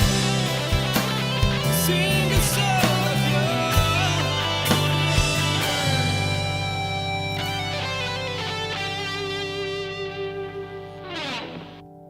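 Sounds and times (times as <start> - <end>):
sustained low bass note: 0.0 - 9.0
electric guitar ringing: 0.0 - 12.0.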